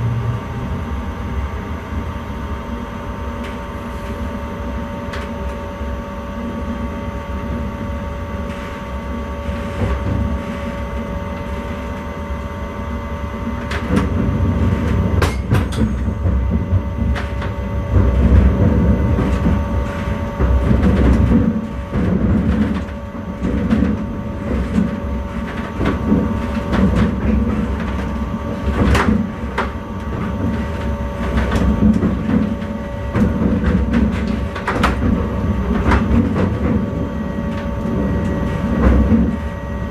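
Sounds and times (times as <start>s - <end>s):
electrical hum: 0.0s - 39.9s
train rolling rumble: 0.0s - 39.9s
wheels clicking over rail joints: 13.6s - 39.4s.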